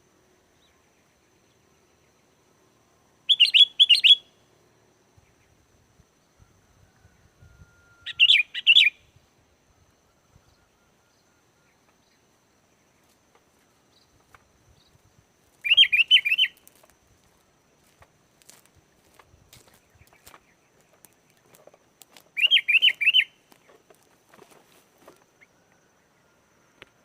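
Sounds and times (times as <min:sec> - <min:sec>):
bulbul singing: 0:03.3 - 0:04.4, 0:15.6 - 0:16.9, 0:19.6 - 0:23.7.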